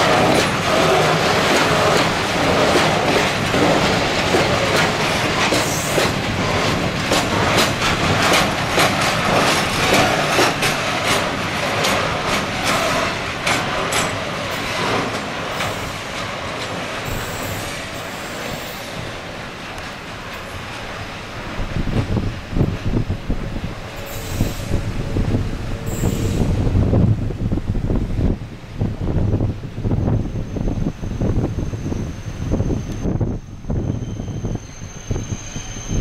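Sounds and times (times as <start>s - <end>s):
wheels clicking over rail joints: 0.0s - 23.0s
high wheel squeal: 17.0s - 19.0s, 23.9s - 24.9s, 25.8s - 26.7s, 30.1s - 36.0s.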